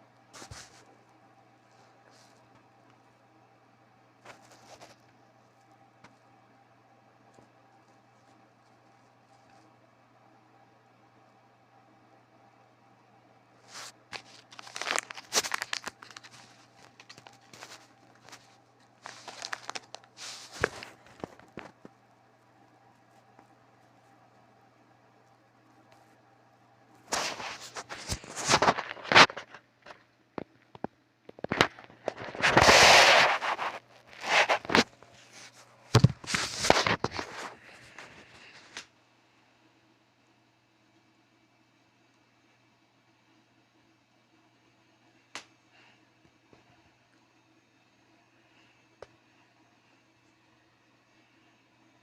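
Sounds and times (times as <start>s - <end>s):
crinkling and rustling: 0.2s - 3.2s, 4.2s - 6.4s, 7.2s - 9.8s, 13.6s - 24.5s, 26.9s - 38.9s.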